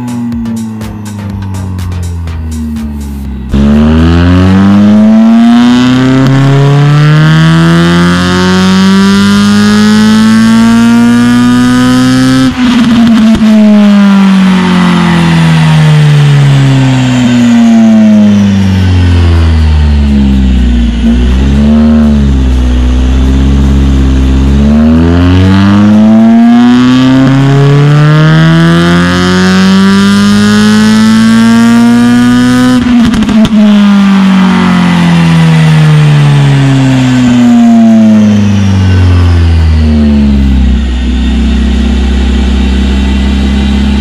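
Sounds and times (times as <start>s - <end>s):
exhaust crackles: 0.0s - 29.6s
car engine revving: 0.0s - 44.0s.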